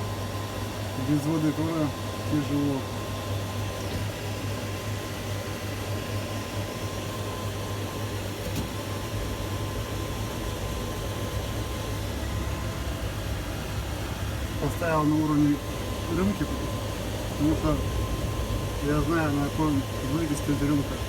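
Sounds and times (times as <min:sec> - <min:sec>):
electrical hum: 0:00.0 - 0:21.0
faint high whine: 0:10.9 - 0:21.0.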